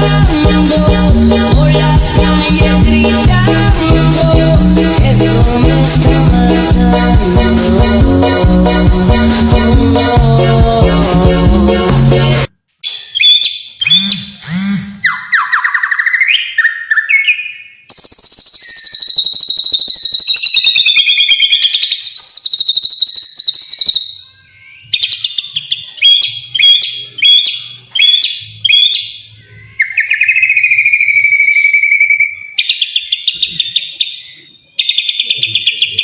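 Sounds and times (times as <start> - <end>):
songbird trilling and chirping: 12.8 - 14.4, 15.0 - 36.0.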